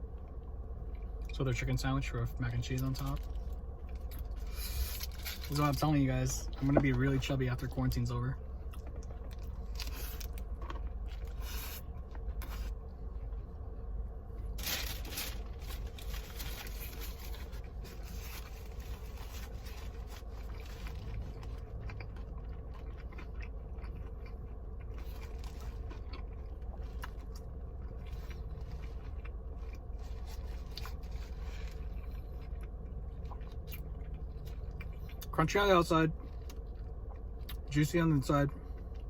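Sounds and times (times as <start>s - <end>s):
steady low hum: 0.0s - 39.0s
crunchy chewing: 8.6s - 13.5s, 14.4s - 35.3s.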